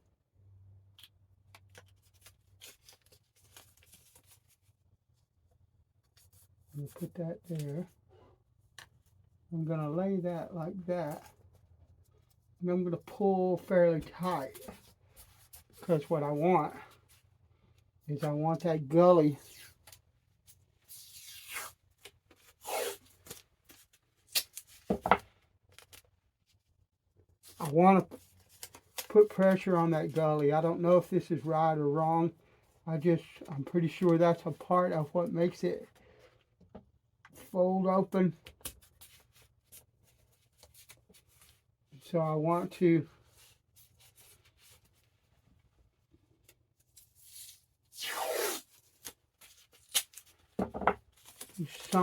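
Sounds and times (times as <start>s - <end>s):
short rasping rip: 22.6s - 23.1s, 47.9s - 48.8s.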